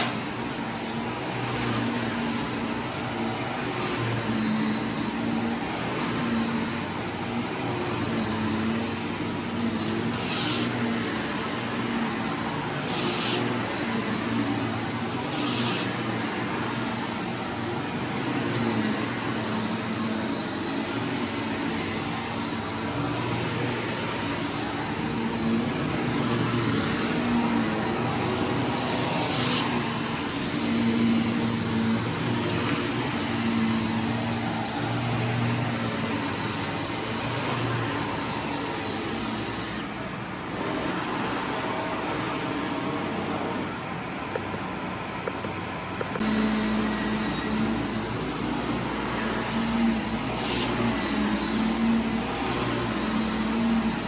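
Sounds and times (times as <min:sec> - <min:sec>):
vacuum cleaner running: 0:00.0 - 0:54.0
hissing bursts of debris sucked up: 0:10.1 - 0:11.6, 0:12.7 - 0:13.8, 0:15.0 - 0:16.3.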